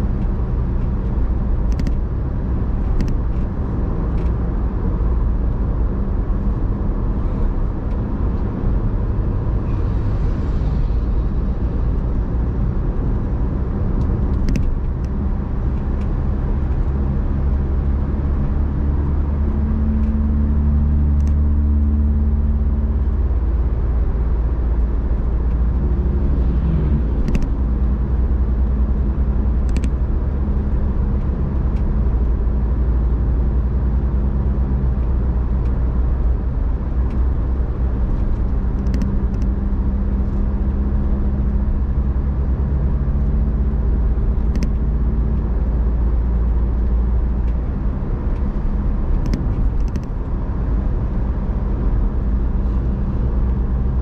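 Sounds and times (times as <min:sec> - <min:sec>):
car engine hum: 0:00.0 - 0:54.0
road rumble: 0:00.0 - 0:54.0
light clicks: 0:29.7 - 0:30.0, 0:38.8 - 0:39.5.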